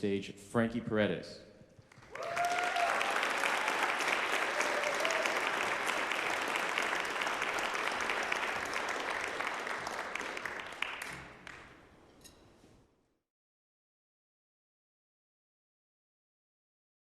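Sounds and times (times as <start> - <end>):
audience applauding: 1.8 - 11.8.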